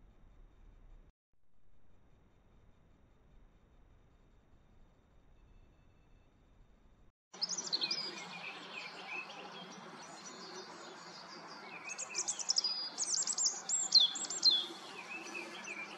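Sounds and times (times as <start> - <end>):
songbirds singing: 7.3 - 15.9.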